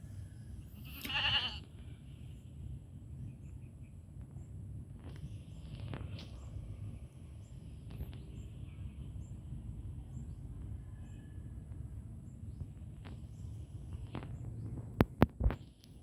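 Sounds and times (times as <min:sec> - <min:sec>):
low background noise: 0:00.0 - 0:16.0
goat bleating: 0:00.8 - 0:01.6.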